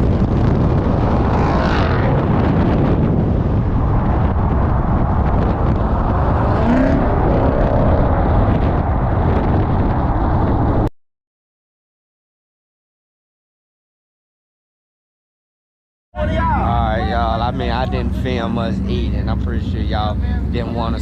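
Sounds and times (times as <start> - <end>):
car engine rumbling: 0.0 - 10.9, 16.2 - 21.0.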